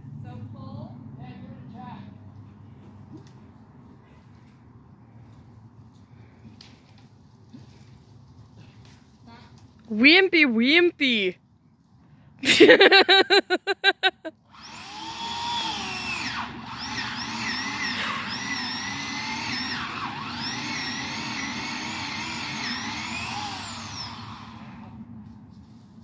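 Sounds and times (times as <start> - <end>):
chainsaw revving: 14.4 - 25.0.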